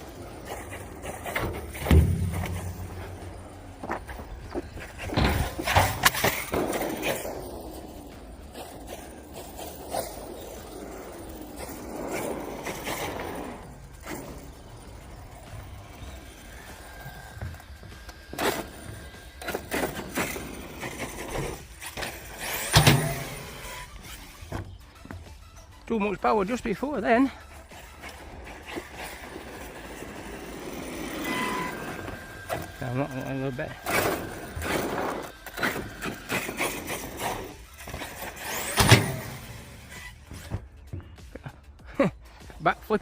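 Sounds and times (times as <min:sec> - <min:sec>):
toy truck clattering on concrete: 0:00.2 - 0:25.6, 0:27.7 - 0:40.5
heavy thump of landing: 0:01.7 - 0:03.4
electric motor whirring: 0:13.6 - 0:24.8, 0:27.9 - 0:40.5.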